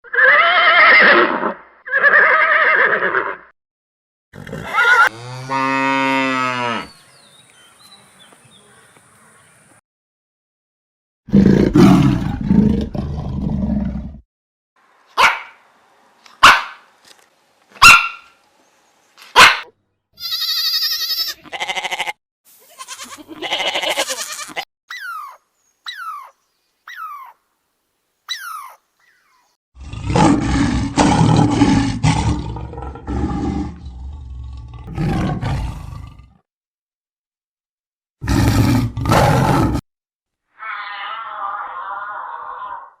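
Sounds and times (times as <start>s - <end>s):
loud low animal call: 40.6s - 43.0s.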